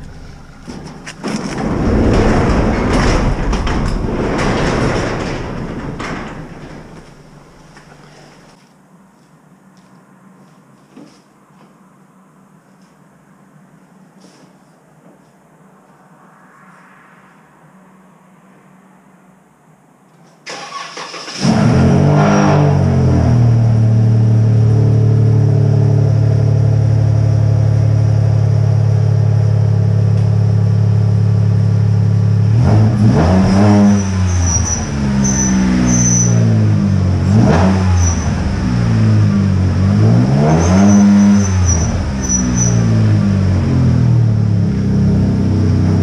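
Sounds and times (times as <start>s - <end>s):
car engine idling and revving: 0.0s - 2.8s, 20.8s - 46.0s.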